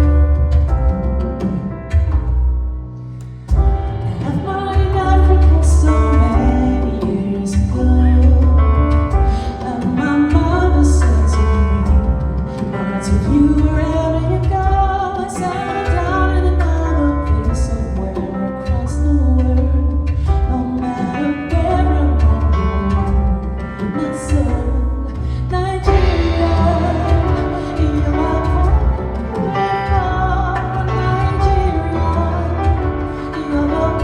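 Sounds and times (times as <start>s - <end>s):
woman singing soul: 3.8s - 34.0s
deep sustained bass notes: 24.6s - 34.0s.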